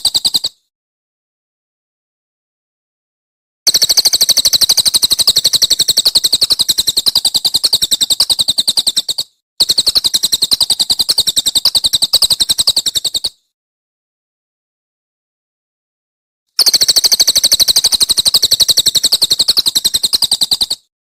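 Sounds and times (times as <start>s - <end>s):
songbird rapid sharp notes: 3.7s - 13.4s, 16.6s - 20.9s.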